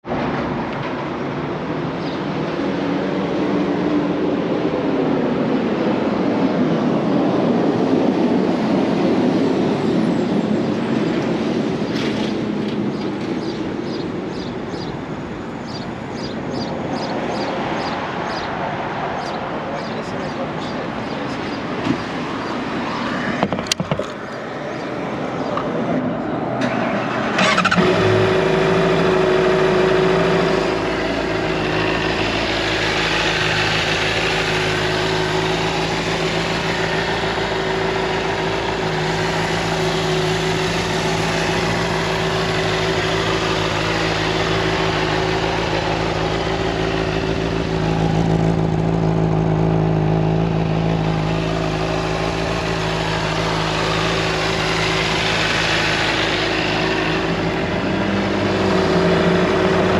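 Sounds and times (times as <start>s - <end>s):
motorcycle engine idling: 27.4s - 59.9s.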